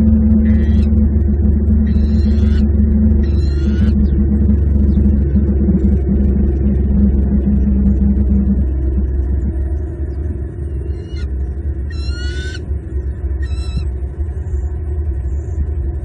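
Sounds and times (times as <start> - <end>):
low rumble: 0.0 - 16.0
eagle chirping calls: 0.5 - 1.0, 1.8 - 4.1, 10.9 - 12.7, 13.4 - 14.0.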